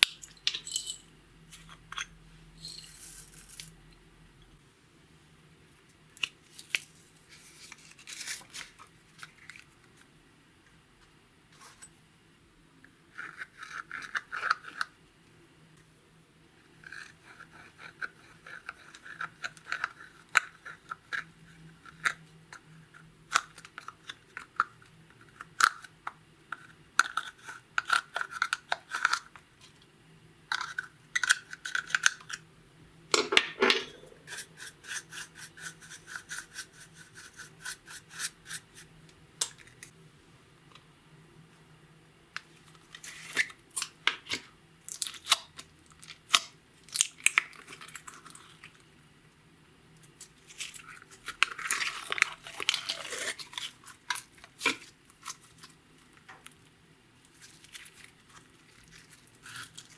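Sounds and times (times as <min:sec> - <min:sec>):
slime worked by hand: 0:57.2 - 0:59.9.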